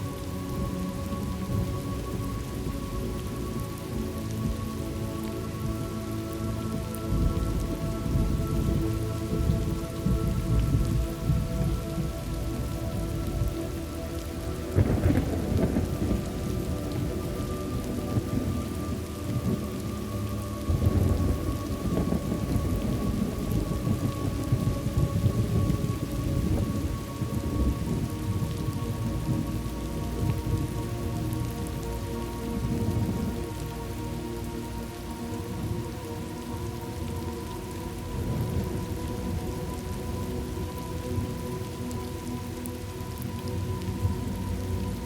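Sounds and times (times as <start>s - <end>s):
steady rain: 0.0s - 45.0s
low rolling thunder: 7.1s - 13.6s, 14.6s - 19.9s, 20.6s - 31.6s.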